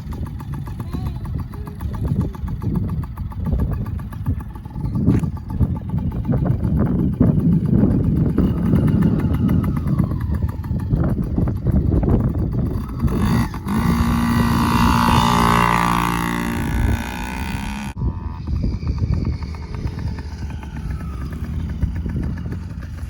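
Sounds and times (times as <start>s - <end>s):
small dirt bike engine running: 0.0s - 23.0s.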